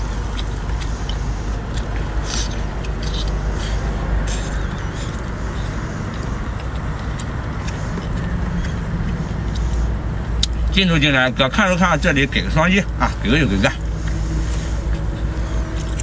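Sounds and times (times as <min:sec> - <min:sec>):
chewing and sucking: 0:00.0 - 0:10.7, 0:13.1 - 0:16.0
steady low rumble: 0:00.0 - 0:16.0
sharp mouth clicks: 0:00.2 - 0:10.7.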